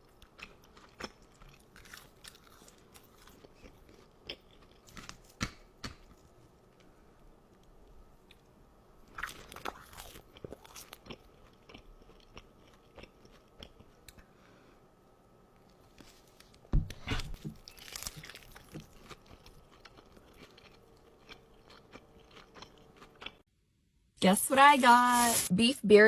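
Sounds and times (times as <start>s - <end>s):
crunchy bites and chewing: 0.1s - 6.2s, 9.1s - 14.1s, 16.9s - 23.4s.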